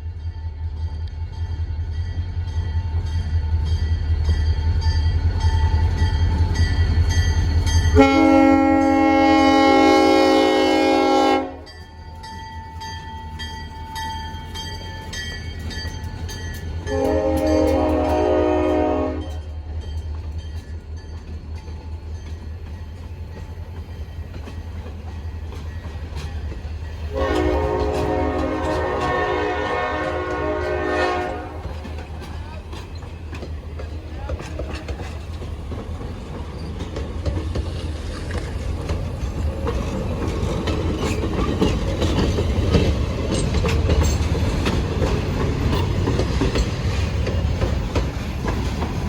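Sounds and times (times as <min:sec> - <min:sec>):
diesel locomotive engine rumble: 0:00.0 - 0:49.0
locomotive air horn blasts: 0:08.0 - 0:11.7, 0:16.9 - 0:19.5, 0:27.1 - 0:31.8
wheels clicking over rail joints: 0:19.2 - 0:49.0.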